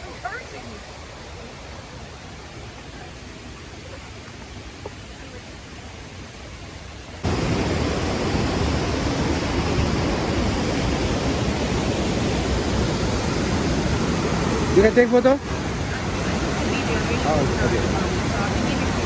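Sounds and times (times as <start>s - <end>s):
waterfall rushing: 7.2s - 19.0s.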